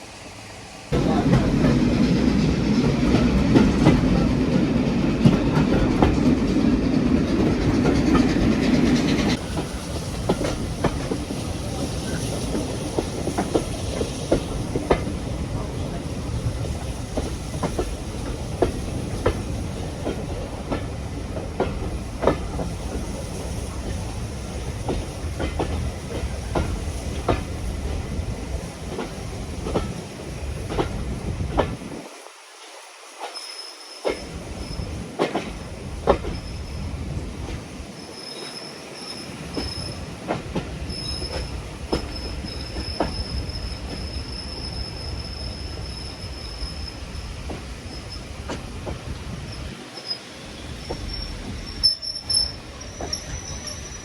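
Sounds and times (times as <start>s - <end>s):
railway carriage rumble: 0.0s - 54.0s
high wheel squeal: 37.9s - 40.1s, 40.9s - 48.4s, 49.4s - 54.0s.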